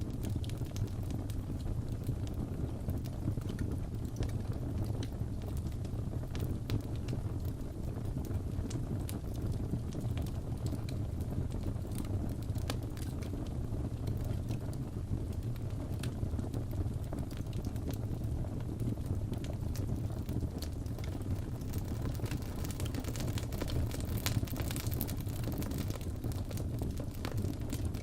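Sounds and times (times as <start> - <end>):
burning wood crackling and popping: 0.0 - 28.0
fire rumbling: 0.0 - 28.0.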